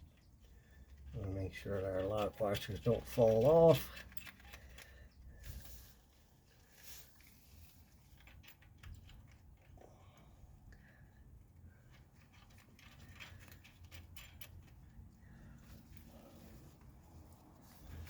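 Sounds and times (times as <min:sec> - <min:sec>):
faint metal clicks of nuts: 0:00.0 - 0:05.7, 0:07.2 - 0:16.1.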